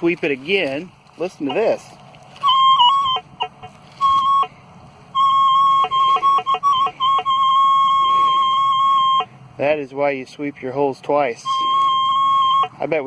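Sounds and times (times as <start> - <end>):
metal detector high tone: 2.4 - 4.5, 5.1 - 9.3, 11.4 - 13.0
metal detector low blips: 2.4 - 4.5, 5.1 - 9.3, 11.4 - 12.7.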